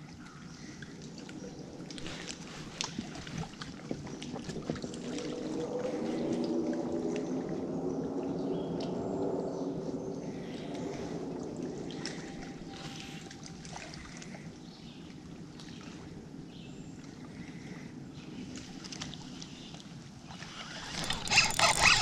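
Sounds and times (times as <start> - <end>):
water sloshing against kayak hull: 1.8 - 6.3
small clicks: 20.8 - 22.0.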